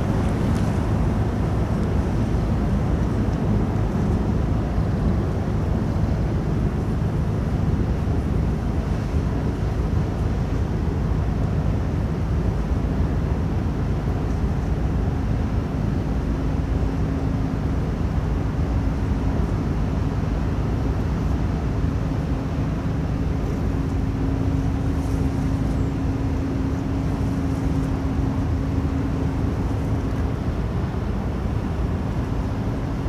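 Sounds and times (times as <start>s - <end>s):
faint constant hum: 0.0s - 33.0s
ship engines droning: 17.1s - 33.0s.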